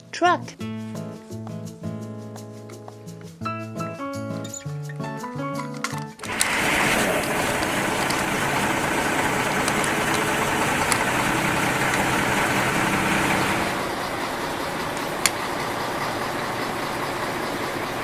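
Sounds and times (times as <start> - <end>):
sharp clicks: 5.8 - 13.8
truck engine running: 6.2 - 18.0.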